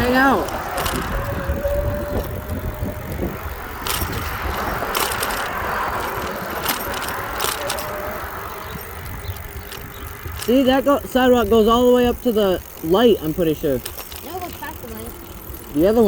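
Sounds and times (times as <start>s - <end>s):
wind on microphone: 0.0s - 12.2s
bicycle clicks and rattles: 0.0s - 16.0s
bicycle tyres rumbling: 0.0s - 16.0s.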